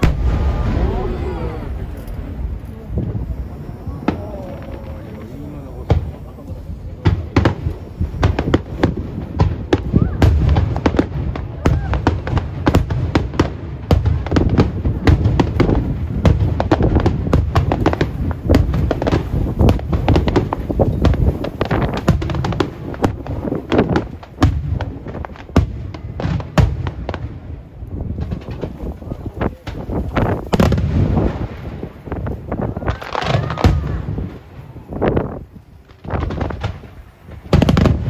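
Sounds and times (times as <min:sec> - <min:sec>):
low rumble: 0:00.0 - 0:09.4
firework shells bursting: 0:00.0 - 0:27.1.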